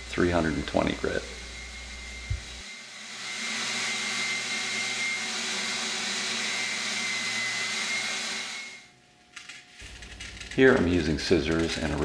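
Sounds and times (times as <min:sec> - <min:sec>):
electric sander on wood: 0:00.4 - 0:08.8.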